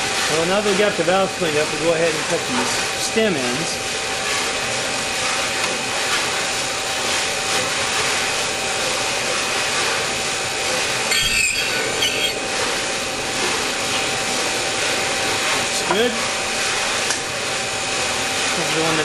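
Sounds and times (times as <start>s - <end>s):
valve grinding machine motor whine: 0.0s - 19.0s
scraping squeal: 11.1s - 12.6s.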